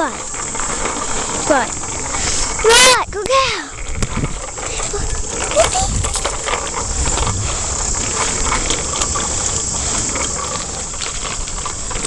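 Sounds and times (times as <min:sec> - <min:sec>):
small clicks and rattles: 0:00.0 - 0:12.0
wind rumble on microphone: 0:02.9 - 0:12.0
rushing ride noise: 0:04.8 - 0:10.9.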